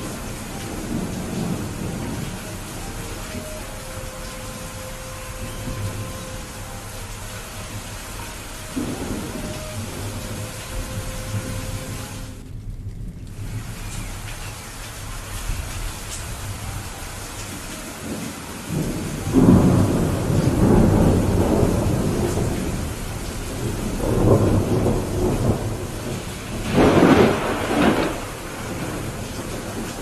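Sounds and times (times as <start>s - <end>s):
steady rain: 0.0s - 30.0s
thunder rolling: 0.0s - 30.0s.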